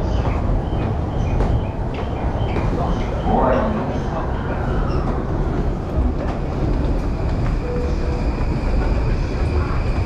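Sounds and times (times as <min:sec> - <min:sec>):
electric train rumble: 0:00.0 - 0:10.0
station stairwell noise: 0:00.0 - 0:10.0.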